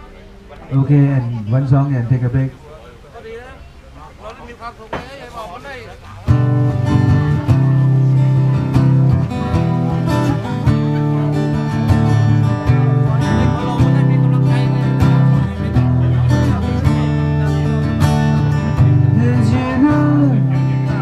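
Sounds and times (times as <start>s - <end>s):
acoustic guitar strumming blues: 6.1s - 21.0s.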